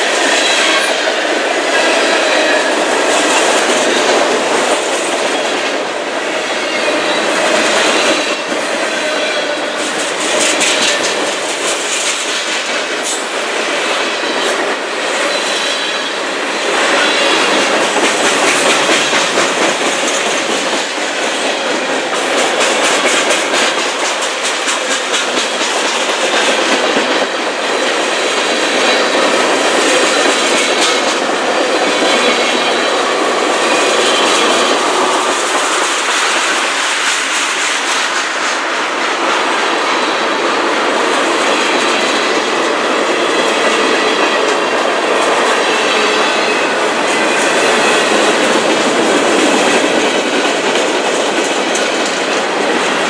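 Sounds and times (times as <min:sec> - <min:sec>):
train wheels clacking over rail joints: 0:00.0 - 0:53.0.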